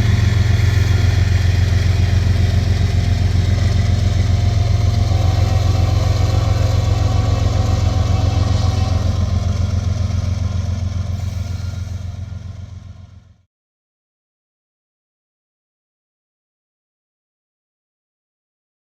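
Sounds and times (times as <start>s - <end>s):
diesel locomotive engine throb: 0.0s - 13.5s.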